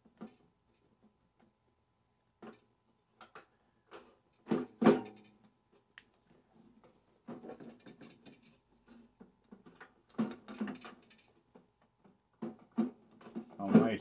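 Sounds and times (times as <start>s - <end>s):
metal parts knocking and rattling: 7.2s - 14.0s.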